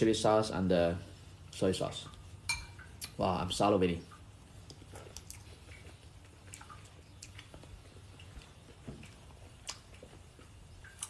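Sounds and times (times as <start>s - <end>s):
faint chewing: 4.5s - 11.0s.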